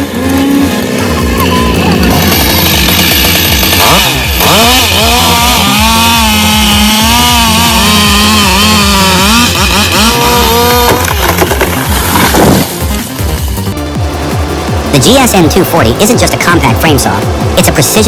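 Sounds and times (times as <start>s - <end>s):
chainsaw cutting at high revs: 0.0s - 13.5s.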